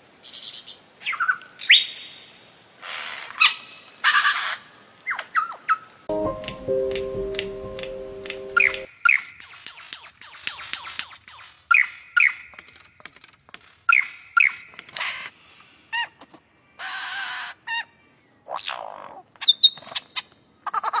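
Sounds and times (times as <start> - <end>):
bird calling: 8.2 - 12.8.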